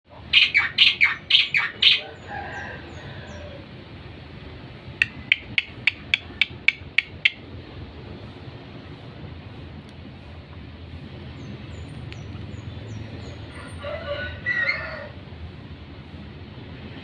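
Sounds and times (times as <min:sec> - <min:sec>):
bird calling: 0:00.2 - 0:03.7, 0:05.0 - 0:07.4.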